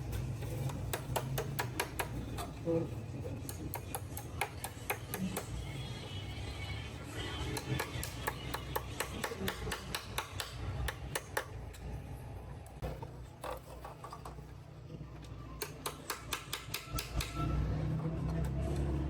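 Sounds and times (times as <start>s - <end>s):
background music: 4.2s - 11.0s.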